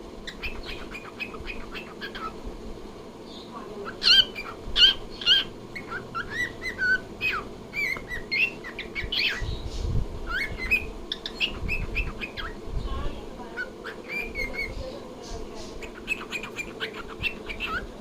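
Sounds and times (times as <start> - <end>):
cockatiel chattering and whistling: 0.2 - 2.4, 3.8 - 9.5, 10.3 - 12.6, 13.6 - 14.8, 15.8 - 17.9.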